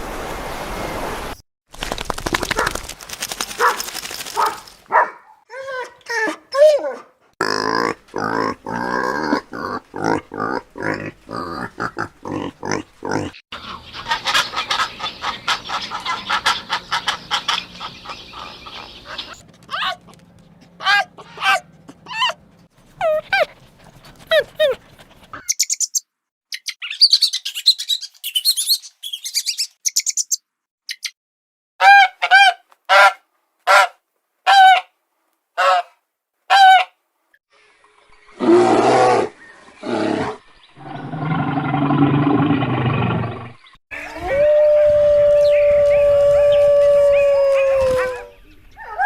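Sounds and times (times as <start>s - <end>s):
honking bird calls: 13.6s - 20.0s
rough animal calls: 15.5s - 25.5s
grating animal call: 19.0s - 25.5s
dog howling: 23.0s - 23.5s, 24.2s - 24.8s, 44.0s - 49.0s
bird chirps: 25.4s - 31.2s.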